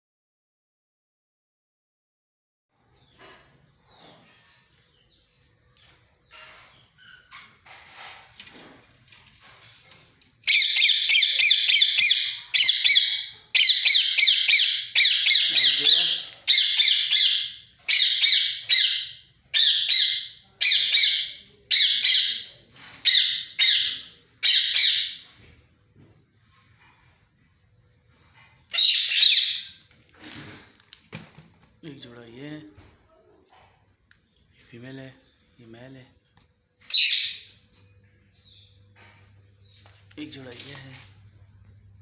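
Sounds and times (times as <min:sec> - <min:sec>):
parrot calling loudly: 0:10.5 - 0:25.2, 0:28.7 - 0:29.8, 0:36.9 - 0:37.5.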